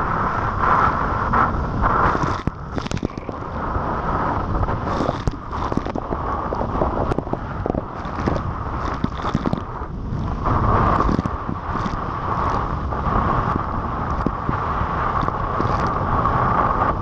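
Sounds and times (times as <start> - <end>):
wind buffeting microphone: 0.0 - 17.0
jet ski engine: 9.6 - 17.0.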